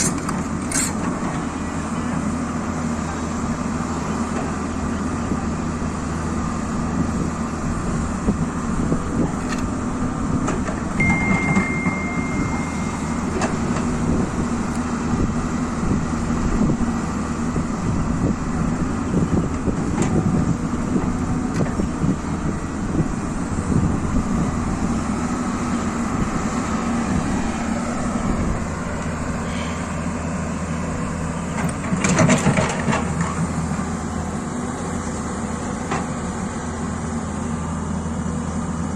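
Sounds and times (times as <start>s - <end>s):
excavator diesel engine: 0.0s - 38.9s
short high beep: 11.0s - 13.4s.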